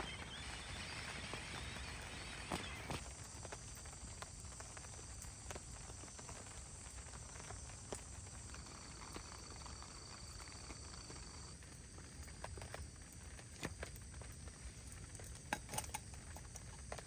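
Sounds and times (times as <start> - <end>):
heavy rain hissing: 0.0 - 11.5
sharp ticks and pops: 0.0 - 17.0.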